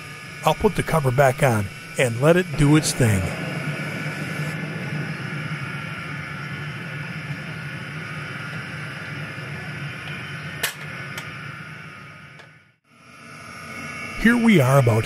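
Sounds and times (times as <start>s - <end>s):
gas burner roaring hiss: 0.0s - 15.0s.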